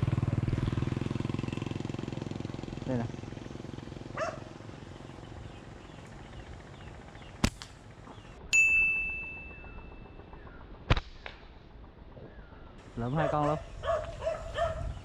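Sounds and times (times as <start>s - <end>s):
slingshot snap: 7.4s - 7.8s
metallic ding: 8.5s - 10.1s.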